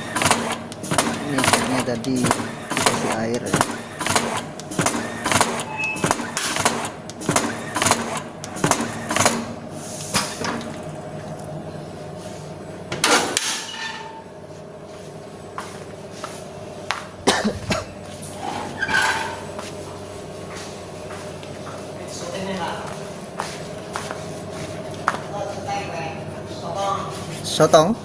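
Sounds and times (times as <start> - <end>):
machine clacking and knocking: 0.0 - 9.6
steady hum: 0.0 - 28.0.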